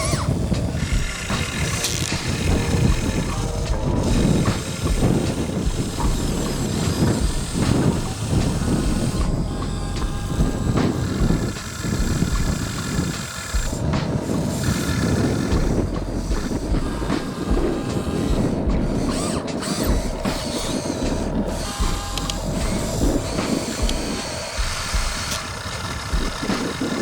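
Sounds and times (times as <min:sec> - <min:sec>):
mechanical rattle: 0:00.0 - 0:27.0
small electric motors and gears: 0:00.0 - 0:27.0.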